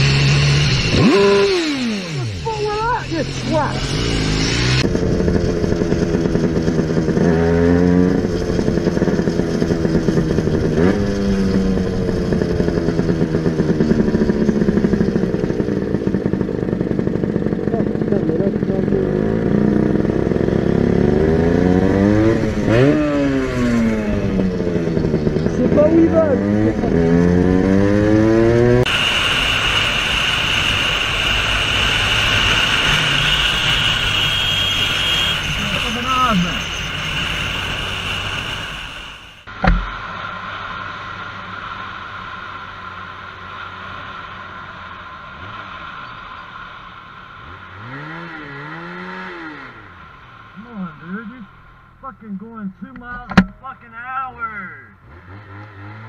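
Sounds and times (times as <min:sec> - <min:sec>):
motorcycle engine revving: 0:00.0 - 0:56.0
wind and road noise: 0:00.0 - 0:56.0
thin high whine: 0:28.9 - 0:39.5.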